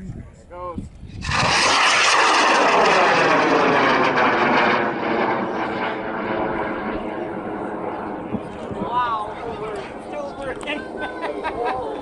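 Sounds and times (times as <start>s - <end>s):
rocket motor roaring: 1.2s - 10.7s.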